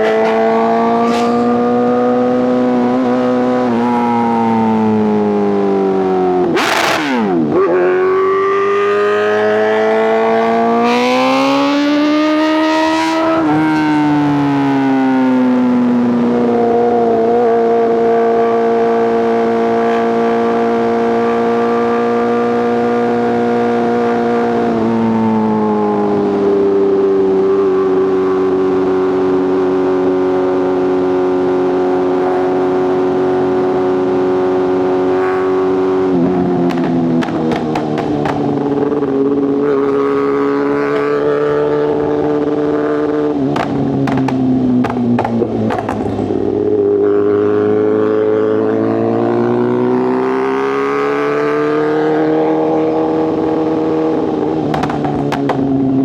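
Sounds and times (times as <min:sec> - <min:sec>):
motorcycle engine and exhaust: 0:00.0 - 0:56.0.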